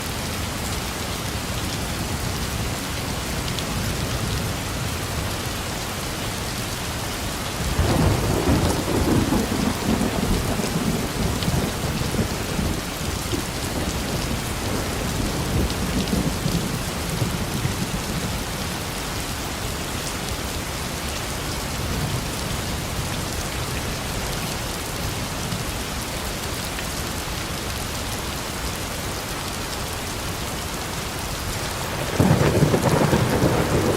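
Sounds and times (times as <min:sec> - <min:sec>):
steady rain falling: 0:00.0 - 0:33.9
thunder rolling: 0:07.7 - 0:18.3, 0:31.9 - 0:33.9.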